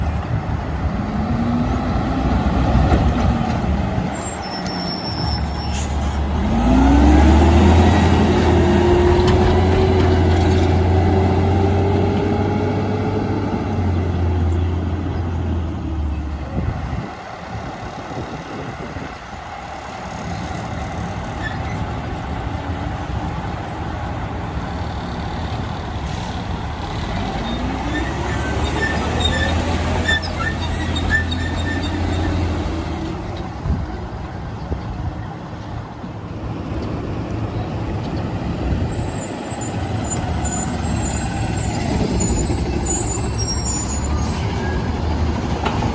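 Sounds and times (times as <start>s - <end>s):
diesel trucks accelerating: 0.0s - 45.9s.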